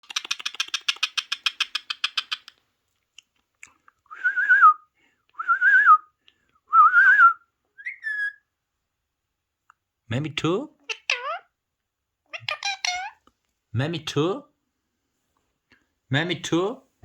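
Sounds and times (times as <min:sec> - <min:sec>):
parrot clicking: 0:00.0 - 0:02.6
parrot whistling: 0:06.8 - 0:08.4.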